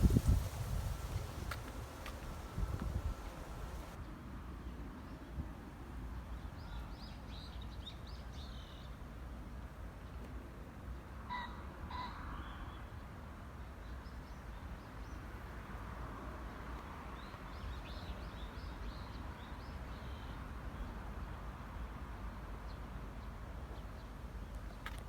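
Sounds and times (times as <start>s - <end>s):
low outdoor rumble: 0.0s - 4.0s.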